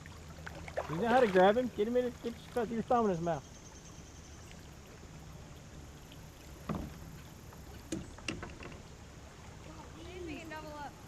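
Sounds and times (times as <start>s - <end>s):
knocks on kayak hull: 6.6s - 7.2s.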